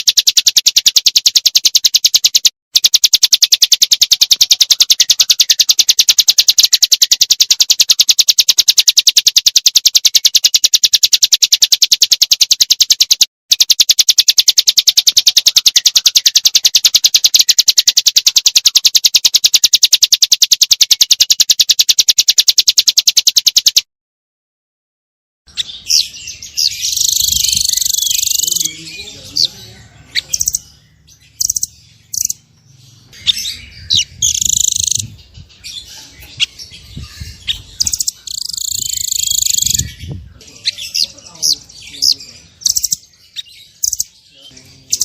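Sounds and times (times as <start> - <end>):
songbird trilling: 0.0 - 23.8, 25.5 - 45.0
short bird chirp: 25.5 - 45.0.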